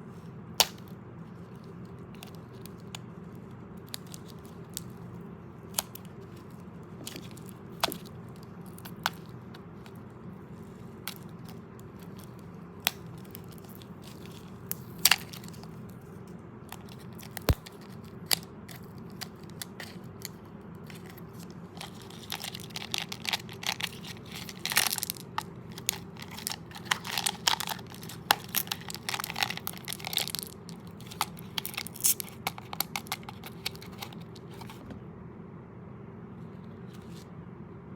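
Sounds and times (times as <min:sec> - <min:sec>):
chewing crunchy candy: 0:16.8 - 0:34.5.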